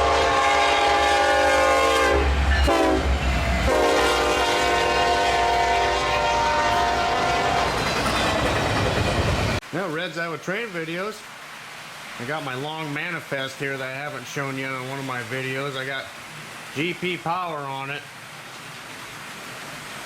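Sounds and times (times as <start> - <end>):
locomotive air horn blasts: 0.0 - 7.8
passing train rumble: 0.0 - 9.9, 11.4 - 20.0.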